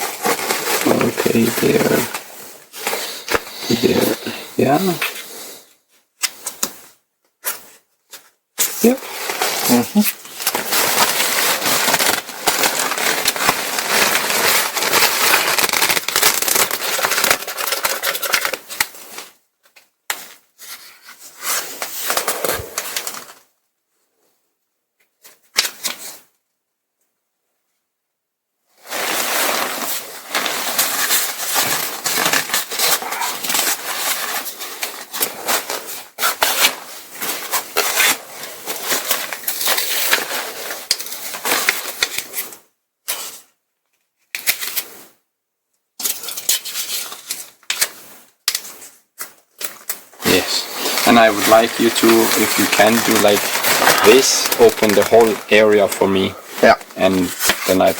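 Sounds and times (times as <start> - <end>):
nylon fabric rustling and crinkling: 0.0 - 5.6, 8.6 - 19.4, 28.8 - 43.4, 46.3 - 57.9.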